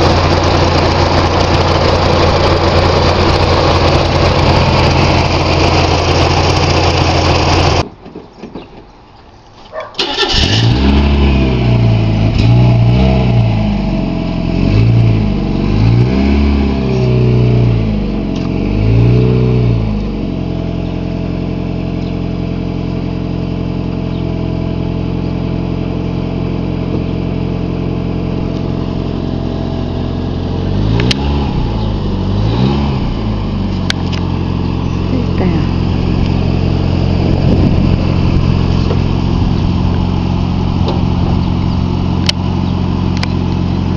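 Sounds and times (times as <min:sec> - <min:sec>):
car engine idling: 0:00.0 - 0:07.9, 0:10.0 - 0:43.9
car engine starting and revving: 0:10.0 - 0:43.9.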